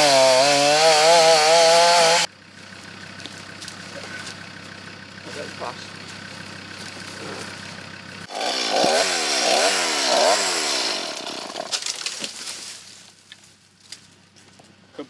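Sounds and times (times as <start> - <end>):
chainsaw cutting tree: 0.0 - 2.3, 8.2 - 12.5
vehicle engine idling: 2.2 - 8.3.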